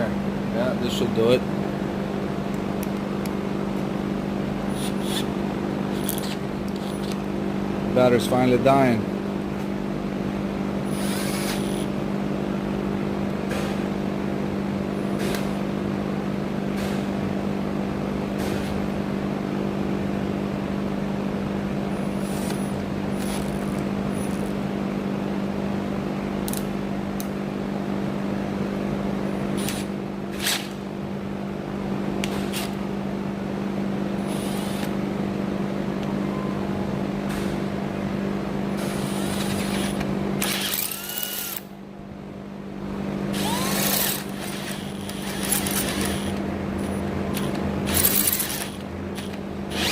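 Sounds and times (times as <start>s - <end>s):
cordless drill drilling metal: 10.9s - 11.9s, 34.3s - 34.9s, 39.0s - 41.7s, 43.3s - 46.4s, 47.4s - 49.9s.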